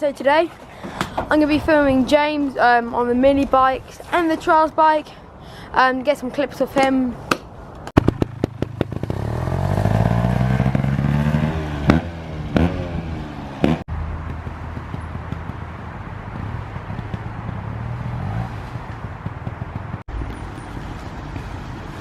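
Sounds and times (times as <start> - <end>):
motorcycle engine revving: 8.0 - 22.0.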